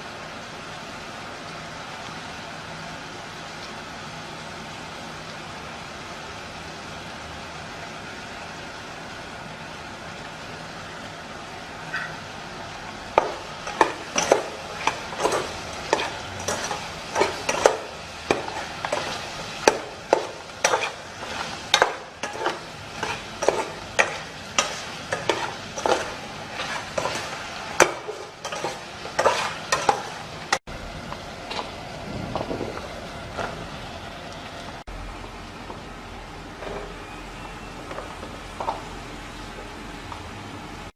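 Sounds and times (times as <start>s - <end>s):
food sizzling: 0.0s - 40.9s
metal utensil scraping pan: 13.2s - 30.3s.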